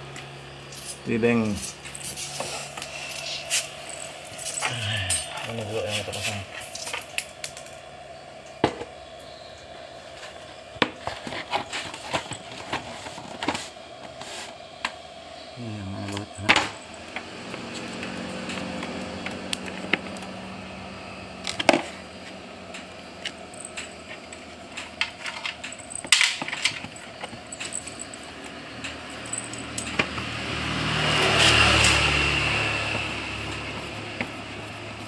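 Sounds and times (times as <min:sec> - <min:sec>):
metal parts and tools clinking: 0:01.6 - 0:07.7, 0:22.7 - 0:30.3
vehicle passing: 0:16.3 - 0:23.6, 0:28.1 - 0:35.0.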